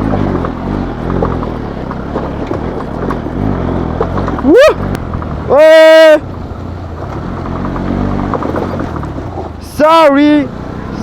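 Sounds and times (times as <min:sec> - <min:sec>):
motorcycle engine running: 0:00.0 - 0:11.0
road noise: 0:00.0 - 0:11.0.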